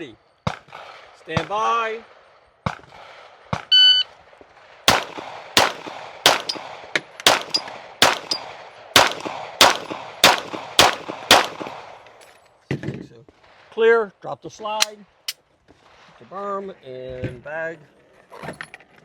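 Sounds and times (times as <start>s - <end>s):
pistol shots with echo: 4.9s - 12.0s.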